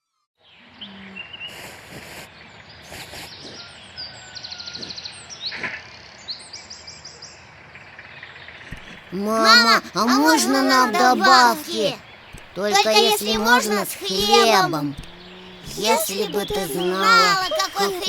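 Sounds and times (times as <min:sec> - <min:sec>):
birds chirping: 0:08.7 - 0:18.0.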